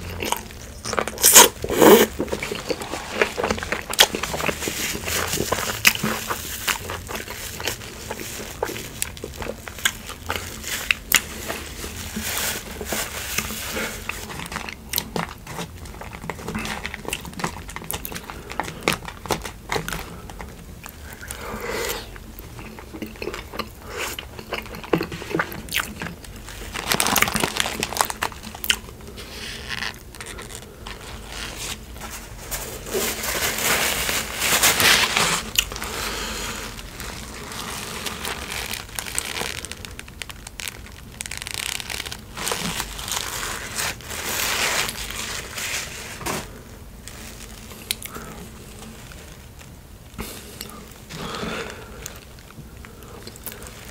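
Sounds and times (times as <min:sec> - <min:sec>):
chewing and biting: 0:00.0 - 0:12.0, 0:13.4 - 0:21.4, 0:22.4 - 0:28.9
paper wrapper crinkling: 0:00.0 - 0:53.9.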